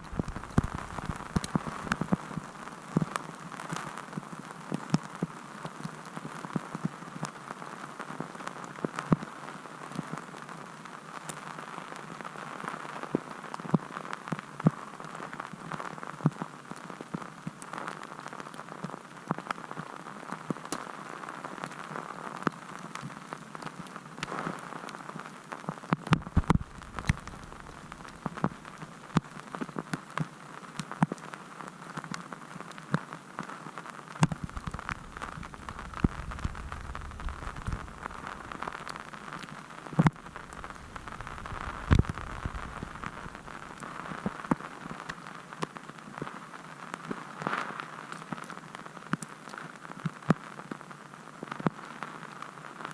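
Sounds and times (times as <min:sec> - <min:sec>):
wind rumble on microphone: 0:00.0 - 0:02.6, 0:26.1 - 0:28.5, 0:34.2 - 0:44.4
blizzard snow hissing and ticking: 0:00.0 - 0:04.0, 0:26.2 - 0:29.3, 0:34.2 - 0:45.1.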